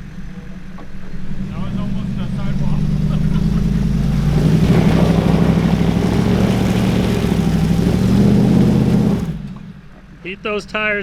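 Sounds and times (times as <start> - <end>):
suv engine pulling under load: 2.4 - 9.6
rough rushing noise: 3.3 - 9.4.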